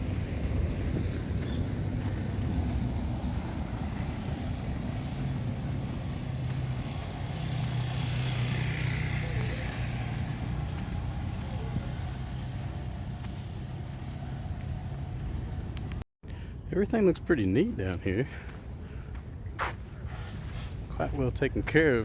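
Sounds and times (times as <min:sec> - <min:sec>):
outdoor noise: 0:00.0 - 0:22.0
vehicle engine passing by: 0:00.1 - 0:15.8.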